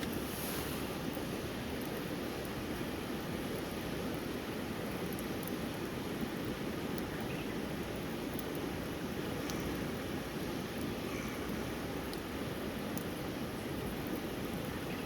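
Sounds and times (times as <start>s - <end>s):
faint ticks: 9.4s - 9.8s.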